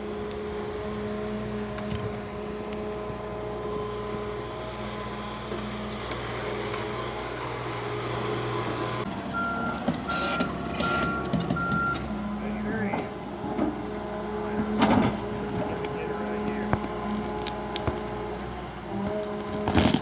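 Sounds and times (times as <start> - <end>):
excavator diesel engine running: 0.0 - 20.0
backing alarm beeping: 9.4 - 12.0.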